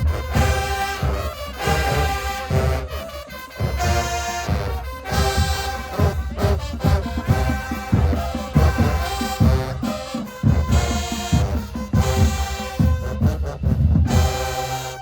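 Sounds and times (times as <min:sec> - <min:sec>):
marching band brass: 0:00.0 - 0:15.0.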